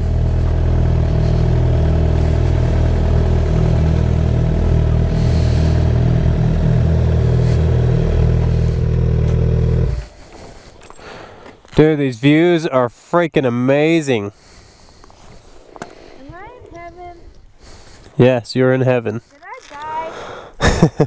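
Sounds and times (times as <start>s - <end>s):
motorcycle engine running: 0.0s - 10.7s.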